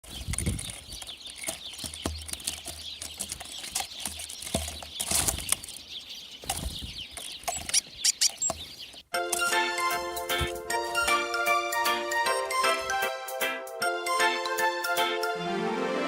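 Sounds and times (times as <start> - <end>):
small birds chirping: 0.0 - 9.1.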